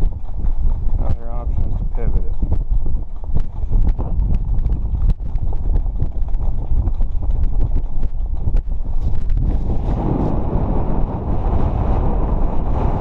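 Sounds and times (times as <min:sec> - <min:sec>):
sharp clicks and knocks: 0:00.0 - 0:09.4
wind buffeting microphone: 0:00.0 - 0:13.0.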